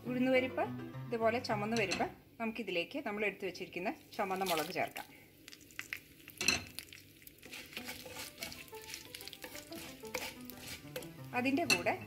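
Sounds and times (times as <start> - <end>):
food sizzling in oil: 3.9 - 12.0
wooden spatula scraping pan: 7.4 - 12.0.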